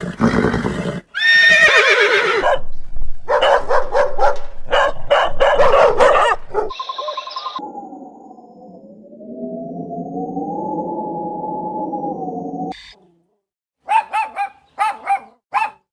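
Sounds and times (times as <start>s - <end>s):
horse whinnying: 0.0s - 2.7s
gliding tone: 7.6s - 12.8s
steady electronic tone: 7.6s - 12.8s.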